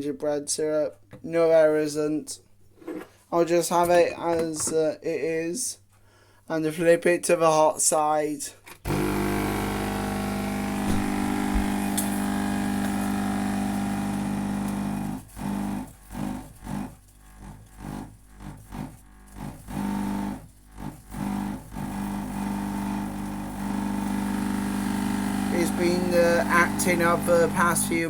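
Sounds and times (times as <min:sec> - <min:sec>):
coffee machine pump buzzing: 0:08.8 - 0:28.0.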